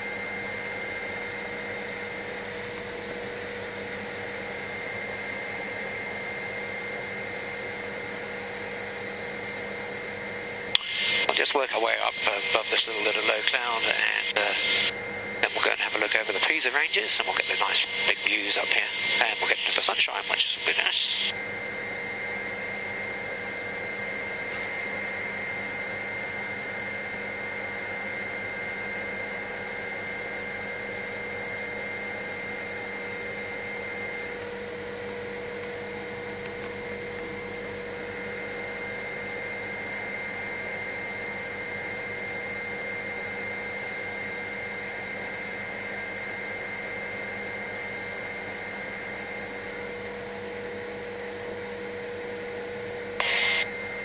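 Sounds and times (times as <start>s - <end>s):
helicopter engine and rotor drone: 0.0s - 54.0s
high-pitched whine: 10.7s - 21.4s, 53.2s - 54.0s.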